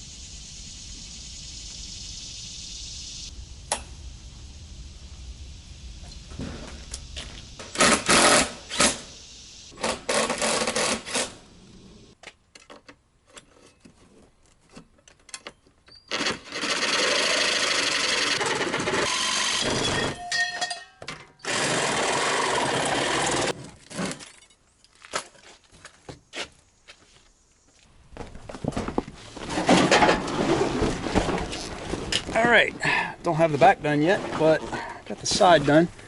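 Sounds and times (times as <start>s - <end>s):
handheld power tool running: 16.1s - 19.9s, 21.4s - 23.5s.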